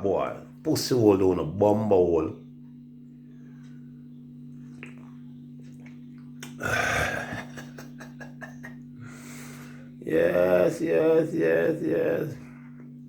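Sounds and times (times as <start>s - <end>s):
steady low hum: 0.0s - 13.0s
man's throaty noise: 6.4s - 7.8s.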